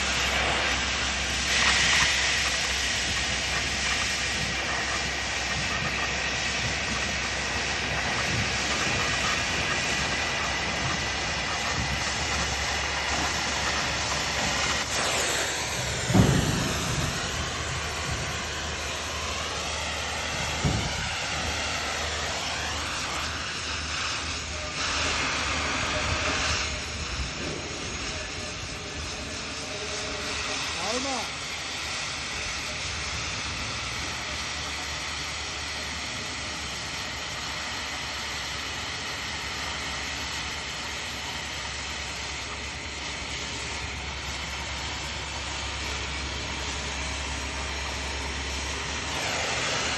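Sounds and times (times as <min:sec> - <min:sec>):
cutting torch hissing: 0:00.0 - 0:49.9
sharp knock: 0:16.0 - 0:18.1.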